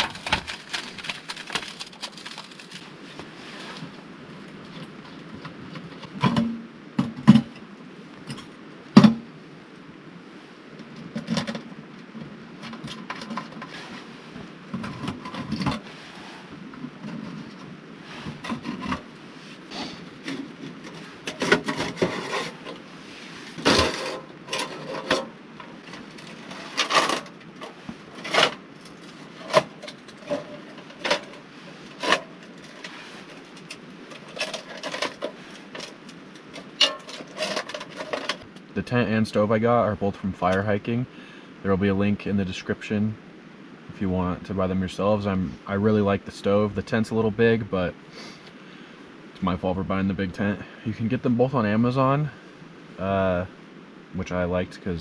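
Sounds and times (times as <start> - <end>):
camping gear knocking and clattering: 0.0 - 2.8, 4.6 - 9.2, 23.6 - 38.5.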